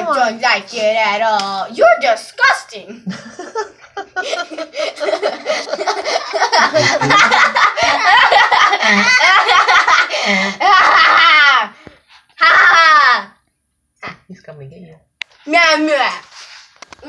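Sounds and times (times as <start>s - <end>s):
laughter: 3.0s - 11.7s.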